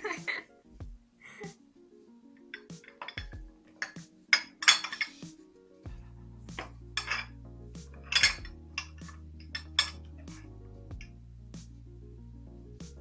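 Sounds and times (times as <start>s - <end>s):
background music: 0.0s - 13.0s
cutlery and dishes clinking: 2.5s - 5.4s, 6.5s - 7.4s, 8.0s - 10.5s.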